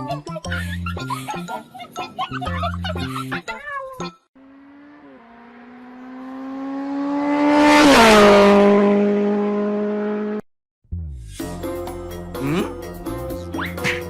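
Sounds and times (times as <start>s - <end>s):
fast car passing by: 4.4s - 10.4s.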